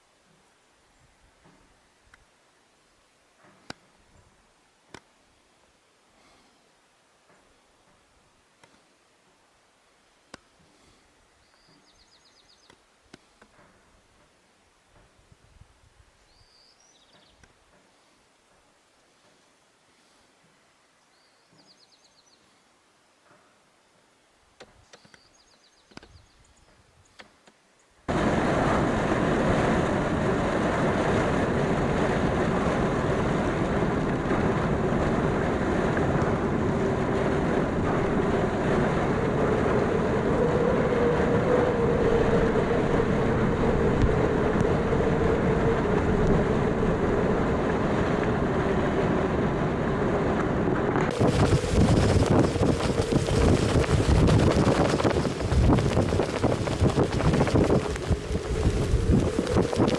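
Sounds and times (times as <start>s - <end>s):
faint clicks: 8.6s - 8.9s
faint moaning wind tone: 28.1s - 59.9s
strong wind rumbling on microphone: 28.1s - 59.9s.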